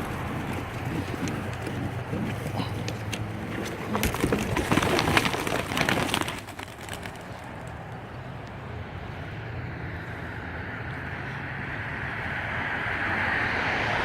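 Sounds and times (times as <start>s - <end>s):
pigeon wings flapping: 0.0s - 7.7s.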